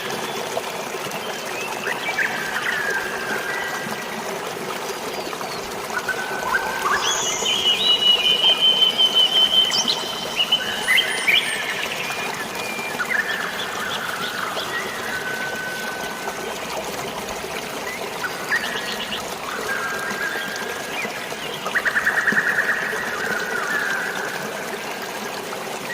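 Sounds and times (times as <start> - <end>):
flowing water: 0.0 - 25.9
birds singing: 5.1 - 16.8.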